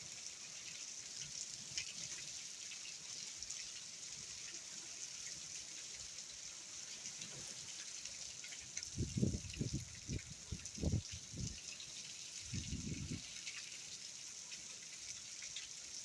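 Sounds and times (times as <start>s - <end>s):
wind buffeting microphone: 9.0s - 11.6s, 12.5s - 13.2s.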